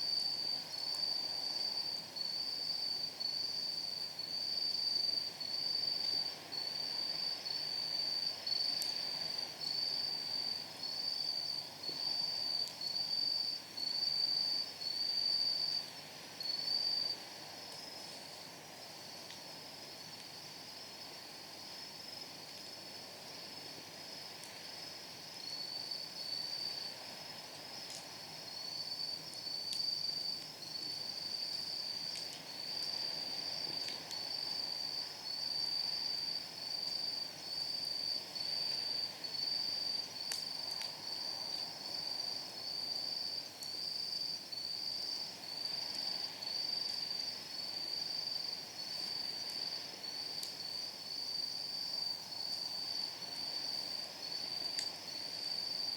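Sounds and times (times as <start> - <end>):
night insects chirping: 0.0 - 55.9
wood fire crackling and popping: 29.2 - 32.9, 40.2 - 41.0, 54.7 - 55.0.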